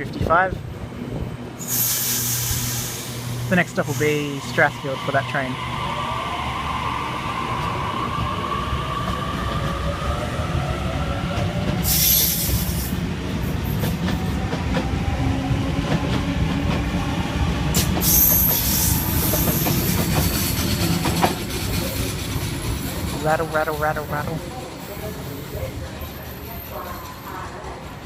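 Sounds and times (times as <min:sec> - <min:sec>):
wheels rumbling on rail: 0:00.0 - 0:28.0
train wheels squealing: 0:11.8 - 0:13.0, 0:17.8 - 0:23.3.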